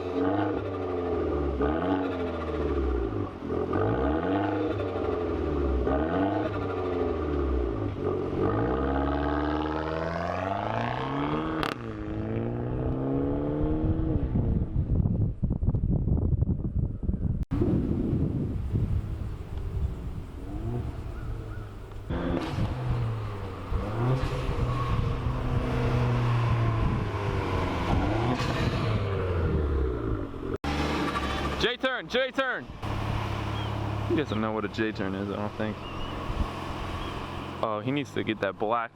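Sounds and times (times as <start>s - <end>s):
car engine accelerating: 0.0s - 15.0s, 19.0s - 31.8s, 32.7s - 38.6s
wind buffeting microphone: 12.1s - 30.4s, 35.8s - 37.0s
car engine running: 32.7s - 38.5s.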